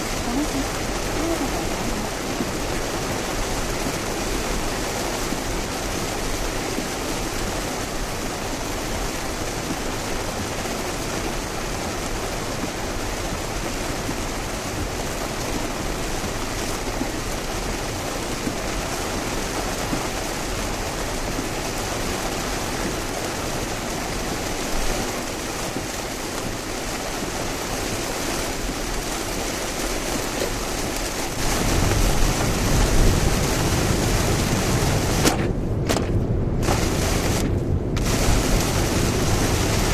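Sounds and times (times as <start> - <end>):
rain and tyre spray hiss: 0.0 - 39.9
deep rumble: 31.4 - 39.9.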